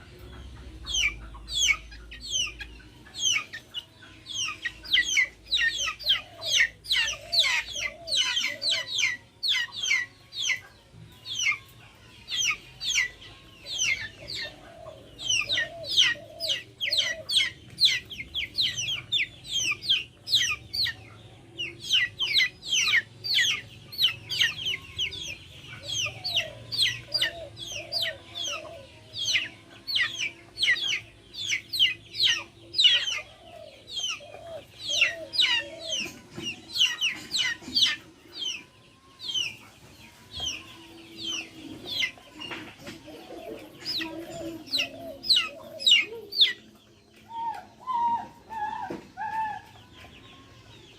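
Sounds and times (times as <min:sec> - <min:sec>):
chicks cheeping: 0:00.0 - 0:50.9
hens clucking: 0:00.0 - 0:50.9.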